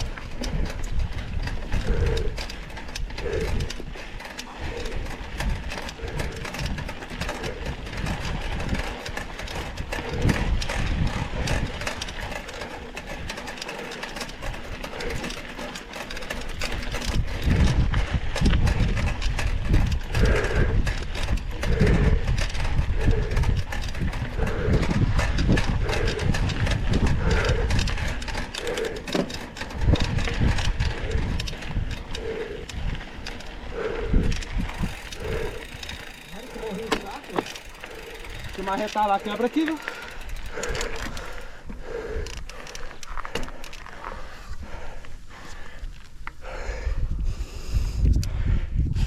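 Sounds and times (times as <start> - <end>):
bike rattling and clicking: 0.0 - 49.0
wind rumble on microphone: 0.0 - 49.0.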